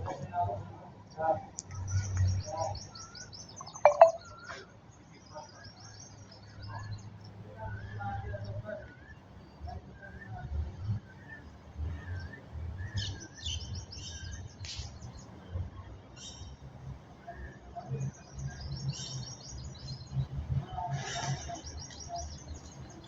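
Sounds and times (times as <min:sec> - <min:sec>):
small birds chirping: 0:01.6 - 0:04.2, 0:21.5 - 0:23.0.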